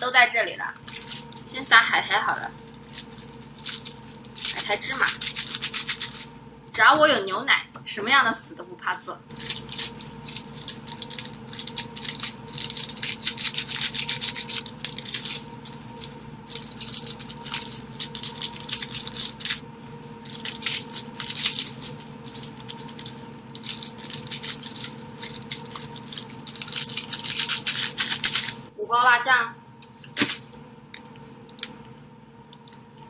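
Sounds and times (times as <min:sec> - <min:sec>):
flakes and seeds rattling: 0:00.8 - 0:01.5, 0:02.5 - 0:06.4, 0:09.2 - 0:28.6
plastic packets crinkling: 0:00.8 - 0:01.5, 0:02.5 - 0:06.4, 0:09.2 - 0:28.6.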